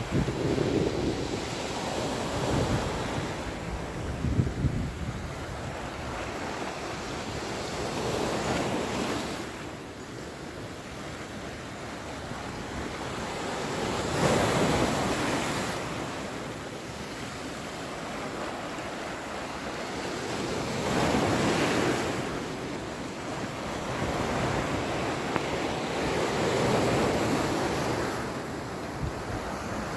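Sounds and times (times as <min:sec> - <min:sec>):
ocean waves breaking: 0:11.4 - 0:29.9.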